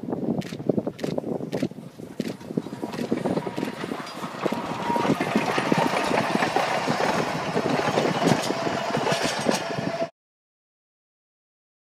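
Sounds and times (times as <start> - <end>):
train wheels clicking and clattering: 0.4 - 10.1
railway carriages rumbling: 0.9 - 10.1.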